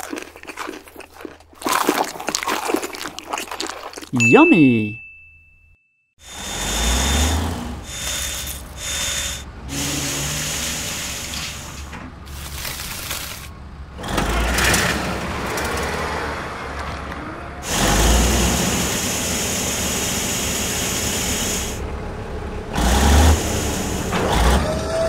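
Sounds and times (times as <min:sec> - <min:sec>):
engine rumble: 0:06.2 - 0:25.0.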